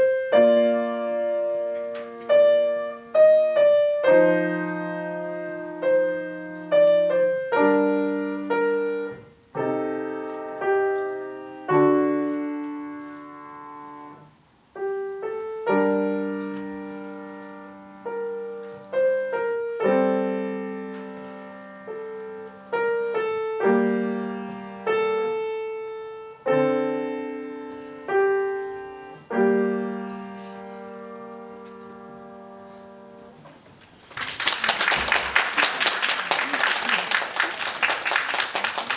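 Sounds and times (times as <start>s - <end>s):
solo piano piece: 0.0s - 34.1s.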